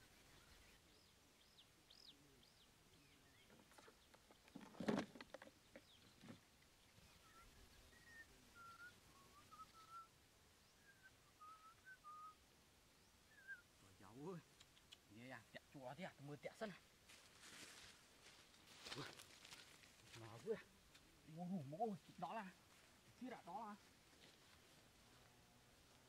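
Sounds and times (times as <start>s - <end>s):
short whistled bird notes: 7.0s - 10.1s, 10.7s - 12.4s, 13.3s - 13.7s.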